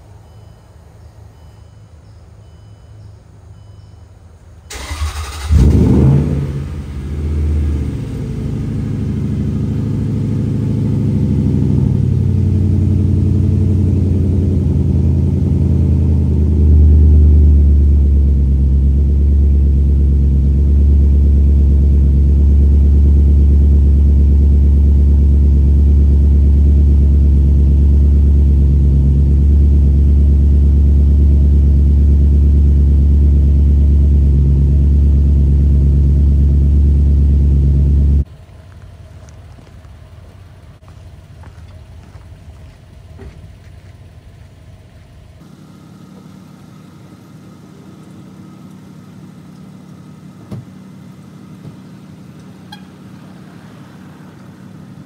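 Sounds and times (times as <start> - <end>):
engine cranking: 4.7 - 5.9
engine revving and idling: 4.7 - 38.3, 45.4 - 55.0.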